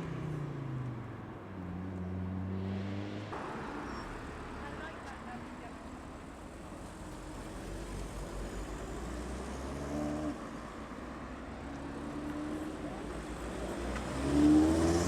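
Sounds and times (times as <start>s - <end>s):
car engines pulling away: 11.5s - 15.0s
car engine accelerating: 11.7s - 15.0s.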